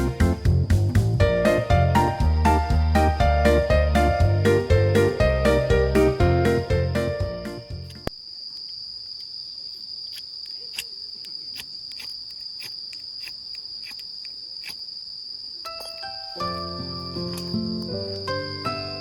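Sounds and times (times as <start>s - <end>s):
background music: 0.0s - 8.1s, 16.1s - 19.0s
insects chirring: 3.5s - 19.0s.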